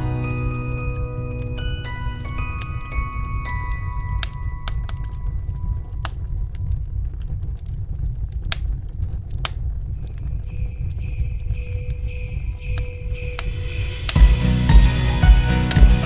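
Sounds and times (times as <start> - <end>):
sleigh bells jingling: 0.0 - 5.5, 10.0 - 16.0
wood fire crackling: 0.0 - 16.0.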